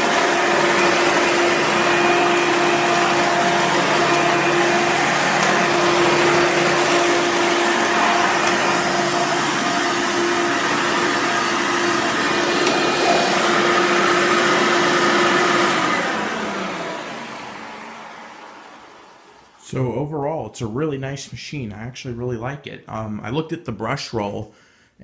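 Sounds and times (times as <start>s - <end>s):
vacuum cleaner motor humming: 0.0s - 19.6s
vacuum motor winding down: 0.0s - 19.6s.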